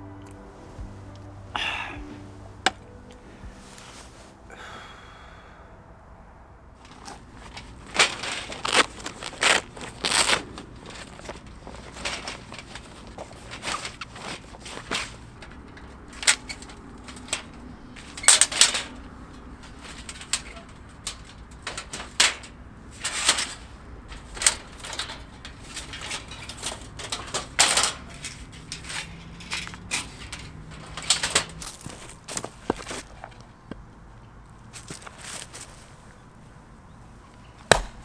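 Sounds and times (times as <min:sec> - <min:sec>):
sharp clicks and crackles: 0:06.8 - 0:33.8.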